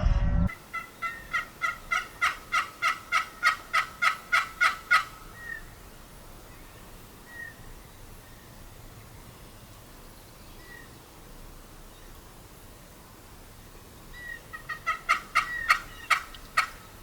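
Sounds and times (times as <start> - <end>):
turkey yelps: 0.7 - 5.6, 14.2 - 16.8.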